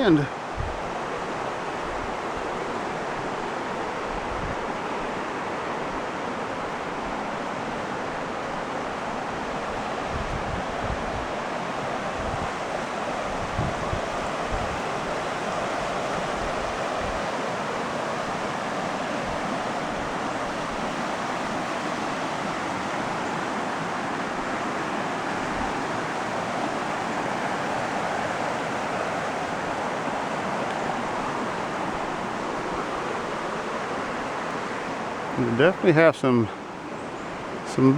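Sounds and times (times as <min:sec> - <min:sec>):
river water rushing: 0:00.0 - 0:37.9.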